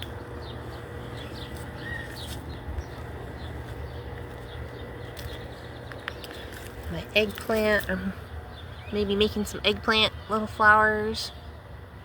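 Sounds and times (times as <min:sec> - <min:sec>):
faint bird chirps: 0:00.5 - 0:03.0.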